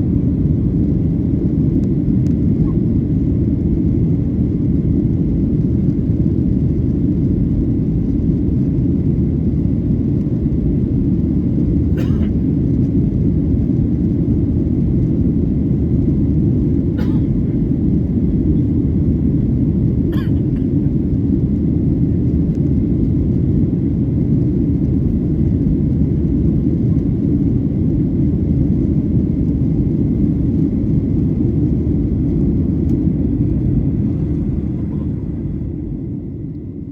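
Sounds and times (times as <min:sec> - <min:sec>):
airplane cabin engine roar: 0:00.0 - 0:36.9.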